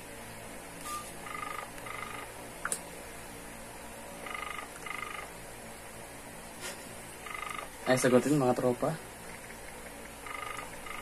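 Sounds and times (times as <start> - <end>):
phone ringback tone: 0.8 - 2.3, 4.2 - 5.3, 7.2 - 7.7, 10.2 - 11.0.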